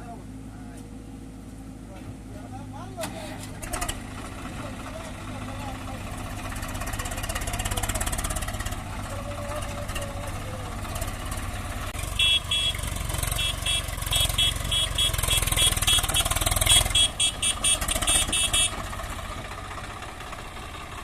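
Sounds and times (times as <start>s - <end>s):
tractor engine running: 0.0s - 21.0s
short high-pitched horn toots: 12.2s - 18.8s.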